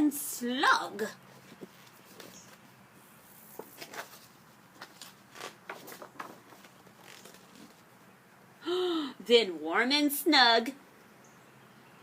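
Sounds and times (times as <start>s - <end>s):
book page turning: 1.3s - 7.9s
paper rustling and tapping: 3.5s - 7.8s.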